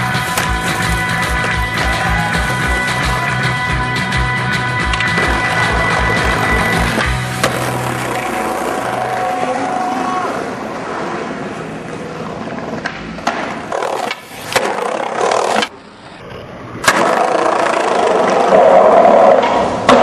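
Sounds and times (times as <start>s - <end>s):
skateboard clacking: 0.0s - 3.6s, 4.8s - 10.1s
skateboard wheels rolling: 0.0s - 3.6s, 4.8s - 20.0s.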